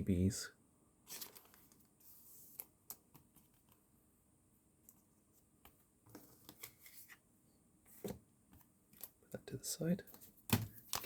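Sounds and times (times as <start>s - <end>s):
trading cards clicking and rustling: 10.1s - 11.0s.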